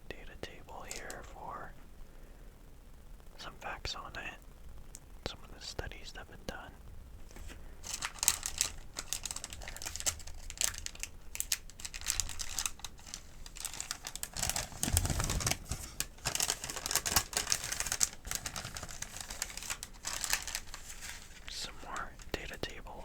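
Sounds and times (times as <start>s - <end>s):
paper crinkling and rustling: 0.8s - 1.2s, 7.2s - 22.8s.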